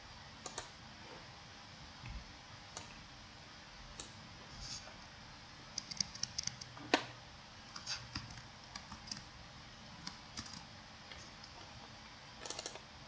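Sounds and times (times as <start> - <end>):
computer keyboard typing: 5.7 - 6.8, 7.7 - 9.3, 10.0 - 10.7, 12.4 - 12.9.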